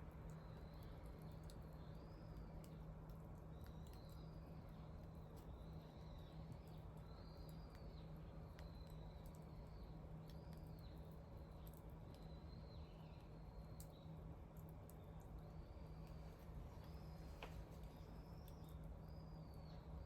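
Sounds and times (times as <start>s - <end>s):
low steady hum: 0.0s - 20.0s
bonfire crackling and popping: 0.1s - 12.6s.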